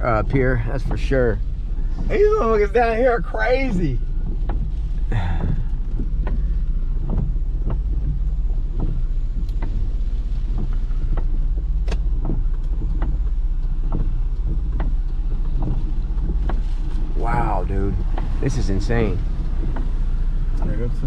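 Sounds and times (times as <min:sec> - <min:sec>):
vehicle rumble through flood water: 0:00.0 - 0:21.0.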